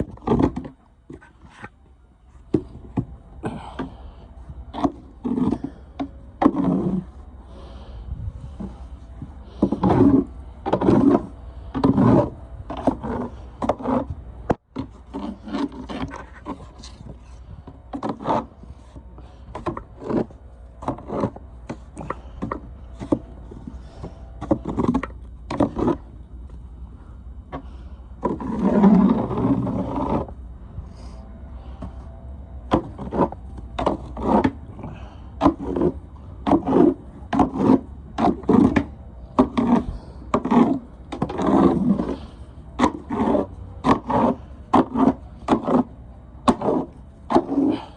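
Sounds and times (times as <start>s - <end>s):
snow shovel scraping wet snow: 39.5s - 45.9s.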